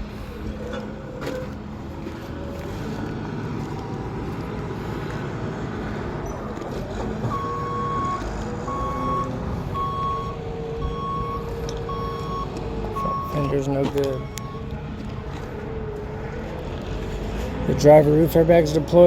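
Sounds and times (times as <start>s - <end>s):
engine rumbling: 0.0s - 19.0s
vehicle backup alarm beeping: 6.2s - 15.2s.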